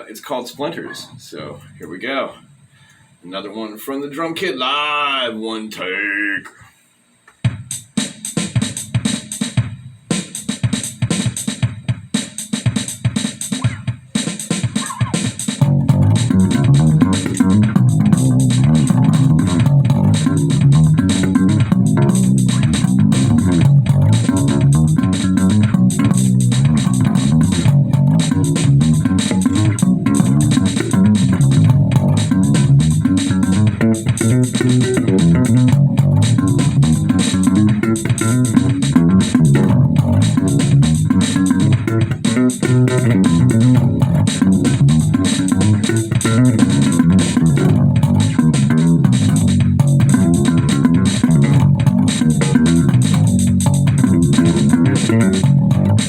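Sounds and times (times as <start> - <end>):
live rock band with bass riff: 14.6 - 56.0.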